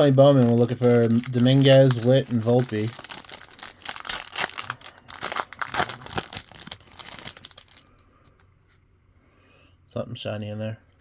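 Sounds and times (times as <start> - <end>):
wrapper tearing and crinkling: 0.0 - 7.9.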